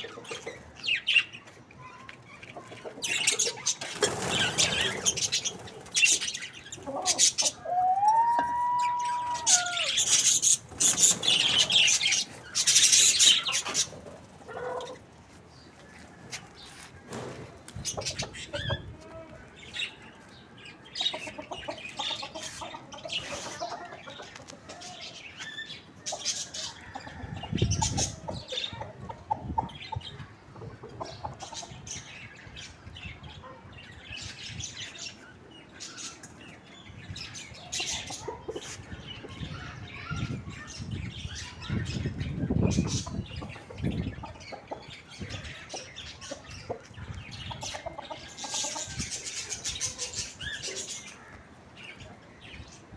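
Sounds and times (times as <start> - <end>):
chickens scratching on roof: 3.4 - 6.2
wings flapping: 3.8 - 6.2, 10.4 - 14.2.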